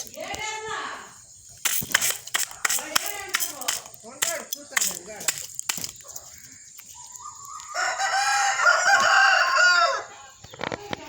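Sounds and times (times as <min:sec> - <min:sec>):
rooster crowing: 0:07.2 - 0:10.3.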